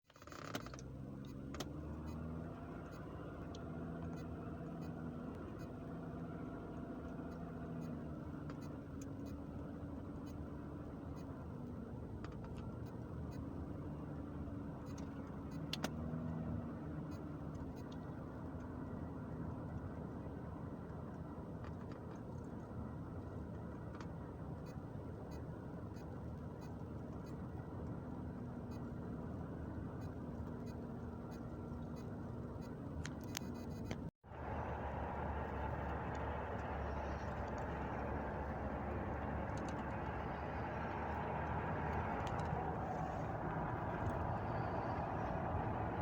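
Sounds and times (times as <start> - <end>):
engine humming: 0.2 - 46.0
faint clicks: 35.1 - 45.3.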